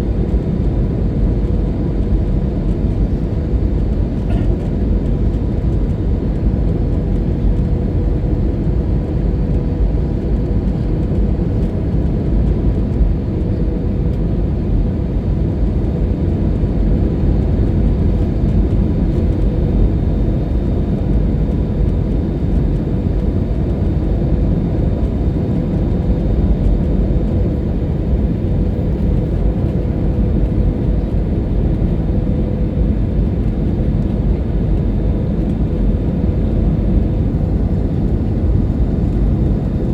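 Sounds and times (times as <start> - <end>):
aircraft cabin engine rush: 0.0 - 39.9
steady hum tone: 15.5 - 39.9.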